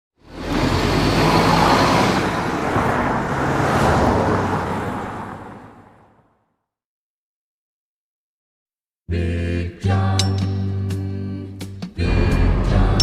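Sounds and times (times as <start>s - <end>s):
broad rushing noise: 0.4s - 6.2s.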